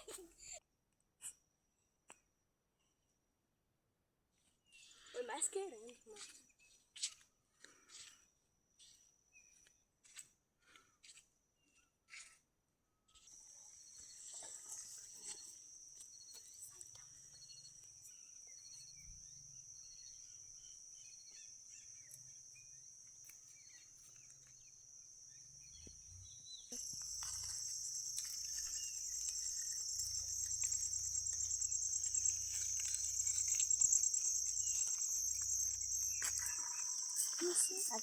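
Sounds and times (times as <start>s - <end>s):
insects chirring: 13.1s - 38.0s
faint short chirp: 25.6s - 38.0s.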